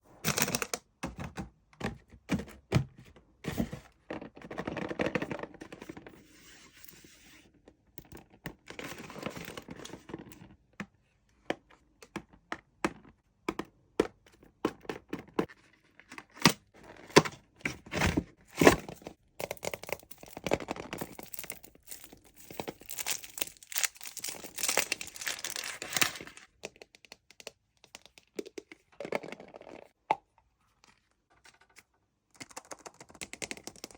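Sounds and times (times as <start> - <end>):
foil wrapper crinkling: 21.0 - 26.4.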